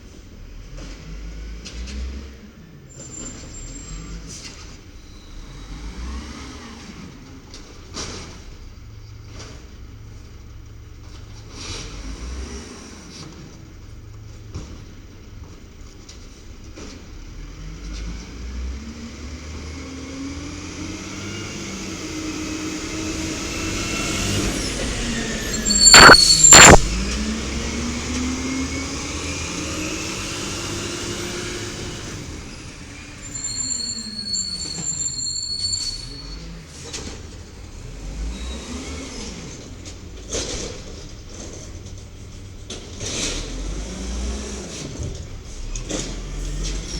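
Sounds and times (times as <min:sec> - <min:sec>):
sharp loud bangs: 0:25.6 - 0:27.2.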